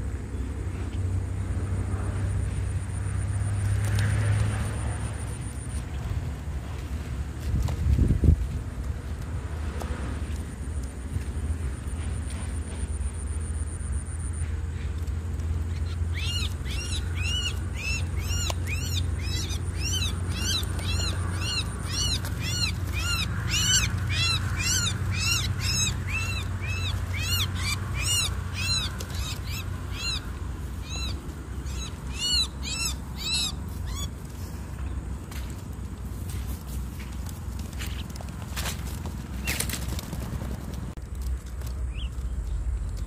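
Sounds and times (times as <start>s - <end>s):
steady low rumble: 4.3s - 43.0s
bird calling: 15.6s - 35.0s.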